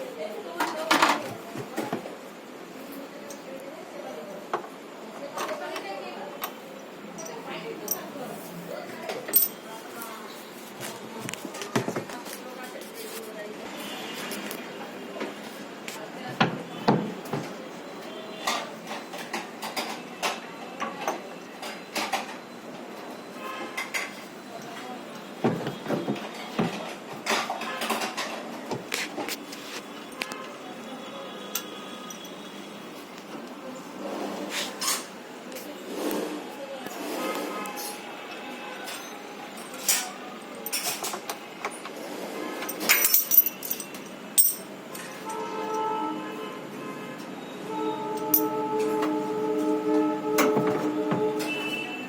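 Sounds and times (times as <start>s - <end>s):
metallic clinks and knocks: 9.3s - 9.6s, 42.7s - 44.7s, 48.3s - 48.5s.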